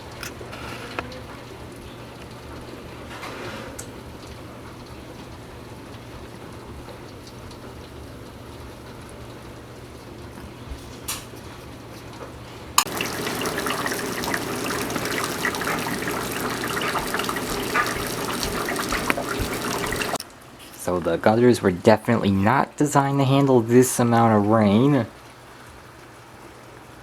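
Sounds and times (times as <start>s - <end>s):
torrential rain: 12.8s - 20.2s
water spilling over gutters: 12.9s - 20.2s.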